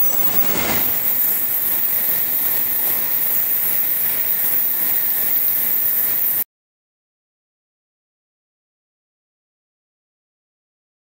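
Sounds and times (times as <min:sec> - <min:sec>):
train running noise in cab: 0:00.0 - 0:06.4.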